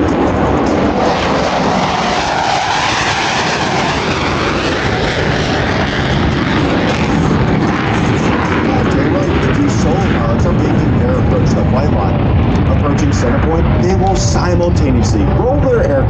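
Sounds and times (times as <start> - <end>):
jets flying past: 0.0 - 16.0.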